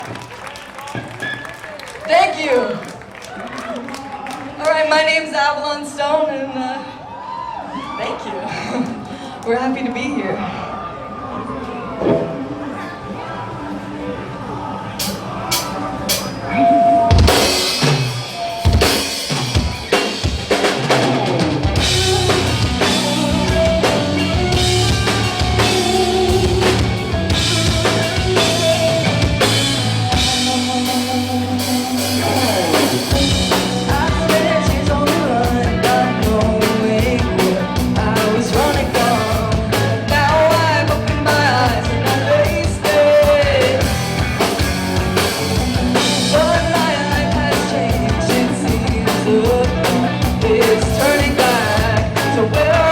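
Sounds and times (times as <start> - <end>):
live rock band playing: 15.0 - 52.9.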